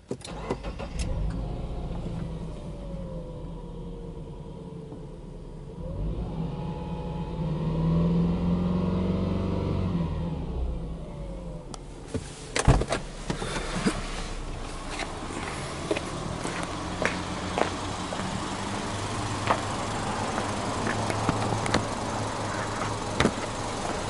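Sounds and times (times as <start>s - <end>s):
car engine revving and idling: 0.3s - 24.0s.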